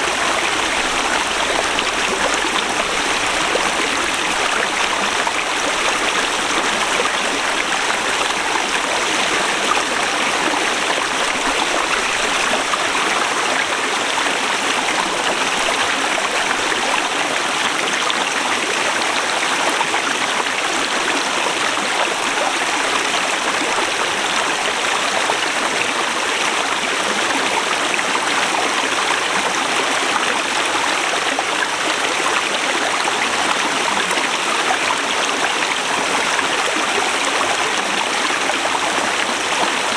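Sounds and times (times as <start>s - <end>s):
river rushing over rocks: 0.0s - 17.8s.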